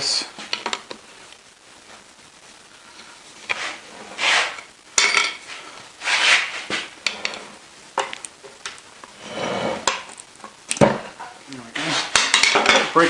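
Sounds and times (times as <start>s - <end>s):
metal-on-metal scraping: 9.1s - 10.1s.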